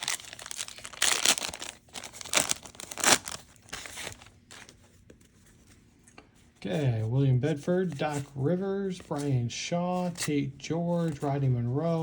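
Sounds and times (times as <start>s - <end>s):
card pack wrapper crinkling: 0.0s - 4.8s.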